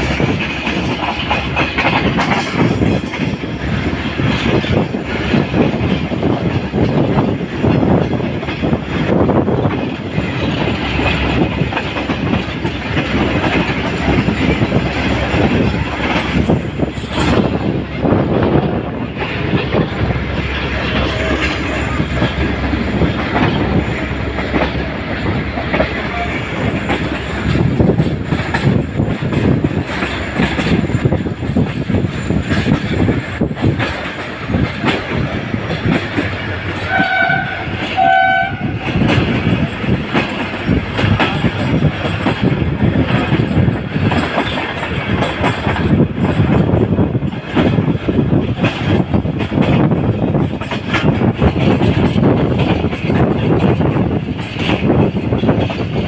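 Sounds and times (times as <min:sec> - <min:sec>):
train wheels clattering over rails: 0:00.0 - 0:56.0
wind rushing: 0:00.0 - 0:56.0
train horn toots: 0:36.8 - 0:39.0.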